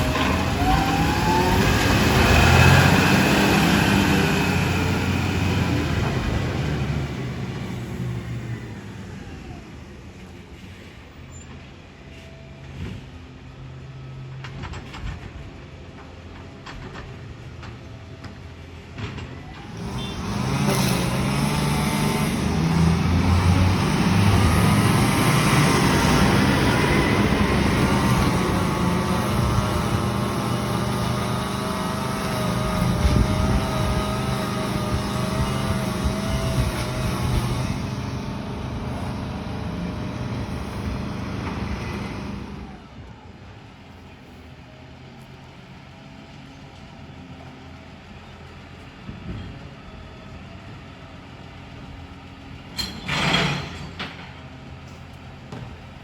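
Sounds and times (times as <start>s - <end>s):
garbage truck engine revving: 0.0s - 10.0s, 19.6s - 42.9s.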